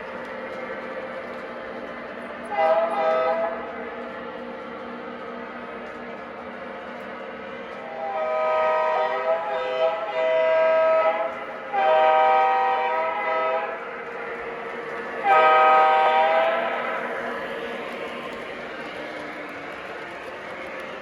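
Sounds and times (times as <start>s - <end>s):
locomotive running rumble: 0.0s - 21.0s
model locomotive air horn blasts: 2.5s - 3.6s, 7.8s - 13.8s, 15.2s - 16.7s.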